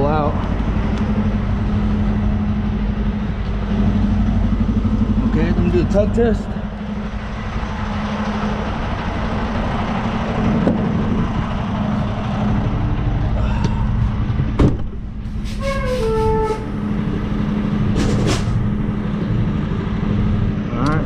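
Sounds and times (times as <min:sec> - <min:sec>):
diesel engine under load: 0:00.0 - 0:21.0
brief air hiss: 0:15.3 - 0:16.3.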